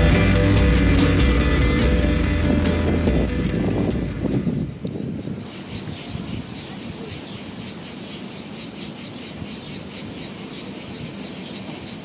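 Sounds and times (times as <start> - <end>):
insects chirring: 3.4 - 12.0.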